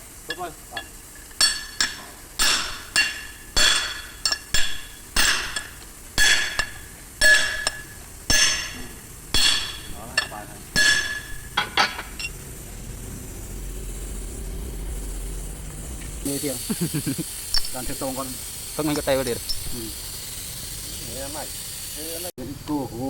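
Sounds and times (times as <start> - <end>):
hammer striking steel: 0.3 - 12.4.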